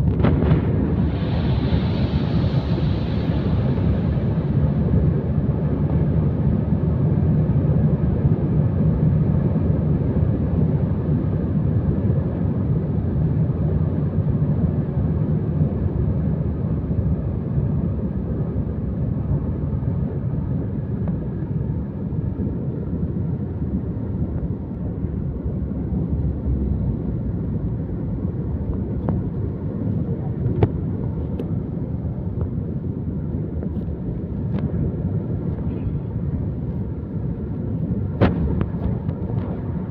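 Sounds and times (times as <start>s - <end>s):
moving vehicle rumble: 0.0s - 39.9s.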